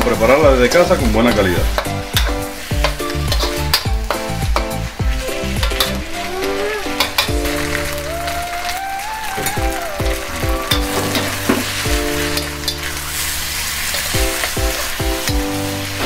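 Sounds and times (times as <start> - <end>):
food sizzling in a wok: 0.0 - 16.0
upbeat electronic music: 0.0 - 16.0
spatula stirring: 0.2 - 16.0.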